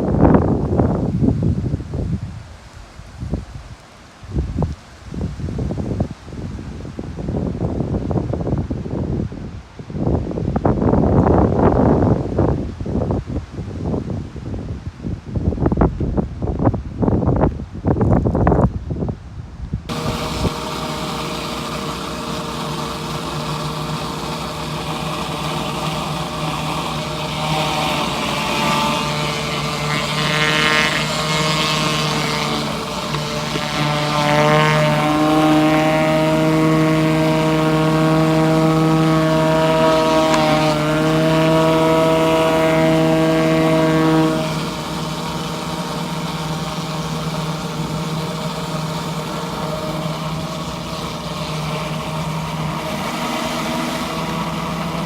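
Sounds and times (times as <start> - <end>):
loud whining tone: 19.9 - 55.0
pressure washer running: 19.9 - 55.0.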